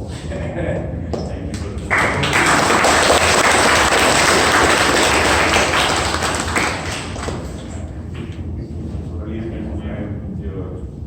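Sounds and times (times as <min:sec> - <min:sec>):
audience applauding: 0:01.6 - 0:08.0.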